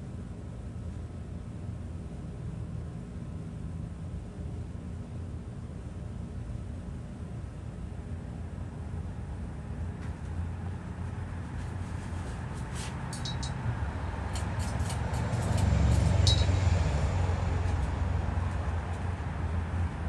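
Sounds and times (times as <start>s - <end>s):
ceiling fan humming: 7.3s - 20.0s
light clinks: 12.2s - 19.2s.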